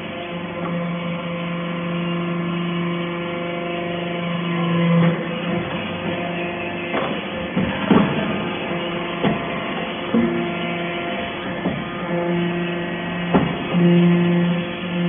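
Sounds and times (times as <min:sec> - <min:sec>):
baler machine humming: 0:00.0 - 0:15.0.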